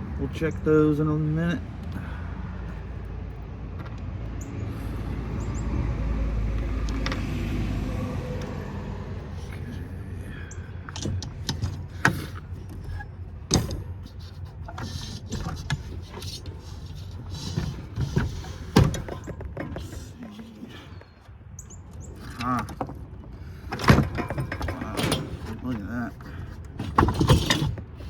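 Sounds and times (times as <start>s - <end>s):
metallic clicks and knocks: 10.8s - 20.0s, 23.7s - 25.8s.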